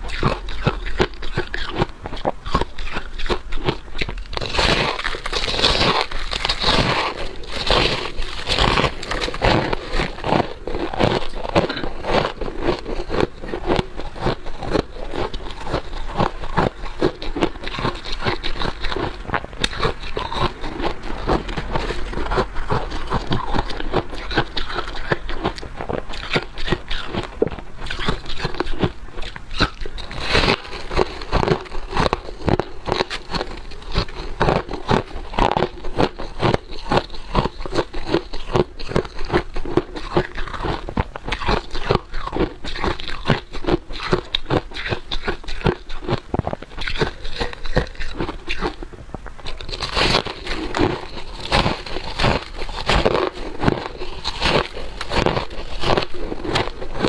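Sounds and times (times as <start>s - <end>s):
chewing ice crunches: 0.0s - 57.0s.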